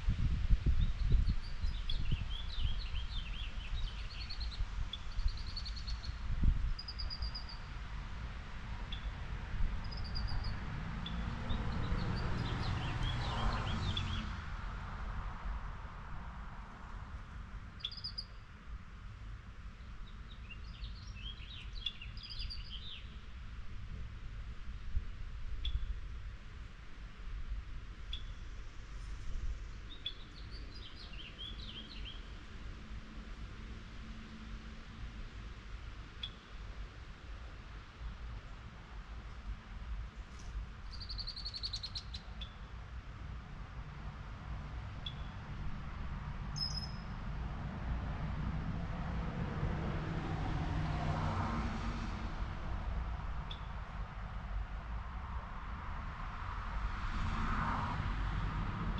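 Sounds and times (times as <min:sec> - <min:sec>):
songbird chirping: 0:09.8 - 0:14.3, 0:17.8 - 0:18.5, 0:19.8 - 0:23.2, 0:29.8 - 0:32.3, 0:40.8 - 0:42.7, 0:46.6 - 0:47.2.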